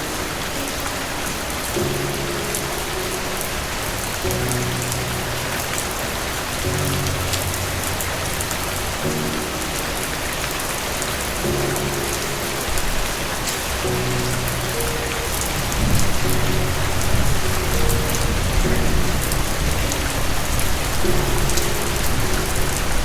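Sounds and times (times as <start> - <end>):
soft music of low chords: 0.0 - 23.0
steady rain: 0.0 - 23.0
close raindrop ticks: 3.4 - 23.0
low rumble of thunder: 11.6 - 23.0.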